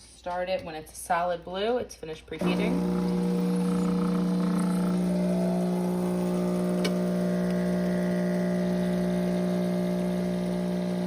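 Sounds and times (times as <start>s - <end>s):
espresso machine pump humming: 2.4s - 11.0s.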